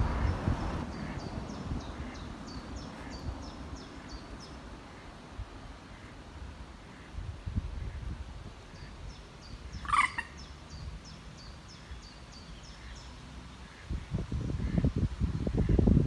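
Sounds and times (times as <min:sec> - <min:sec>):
wind rumble on microphone: 0:00.0 - 0:11.8, 0:13.6 - 0:16.0
loud bird call: 0:09.7 - 0:10.5.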